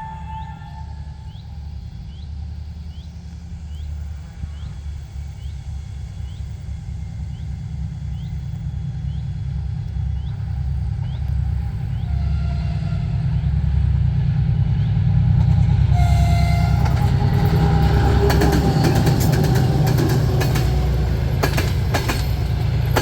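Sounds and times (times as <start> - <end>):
locomotive horn blast: 0.0 - 1.6, 11.6 - 13.9, 15.8 - 21.1
diesel locomotive engine rumbling: 0.0 - 23.0.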